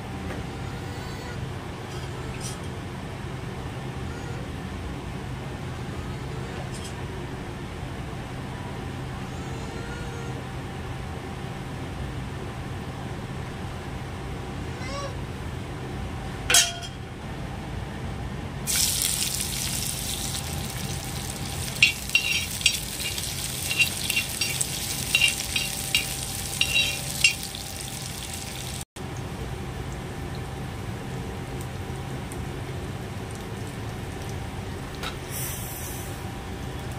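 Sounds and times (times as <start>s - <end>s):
food sizzling in hot oil: 18.7s - 28.9s
metal utensil clinking on pan: 21.6s - 27.7s.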